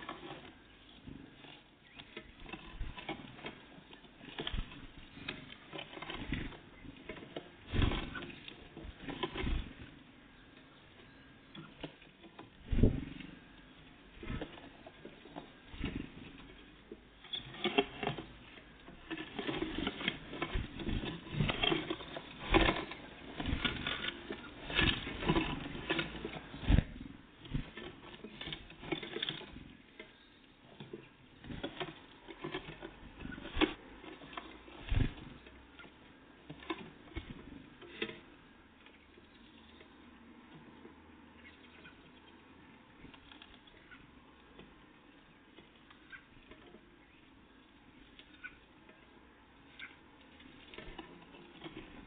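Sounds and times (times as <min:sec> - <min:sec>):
birds pecking and scrabbling: 0:00.0 - 0:52.0.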